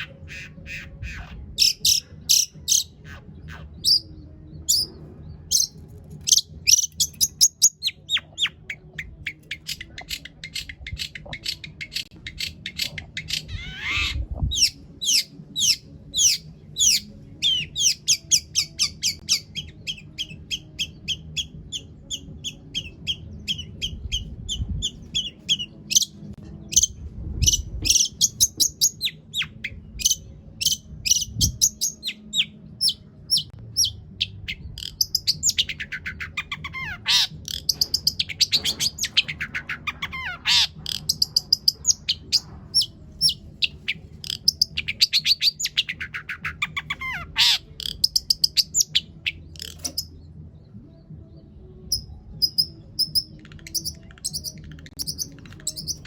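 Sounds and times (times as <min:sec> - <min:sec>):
shrike singing: 0:00.0 - 0:50.2, 0:51.6 - 0:56.0.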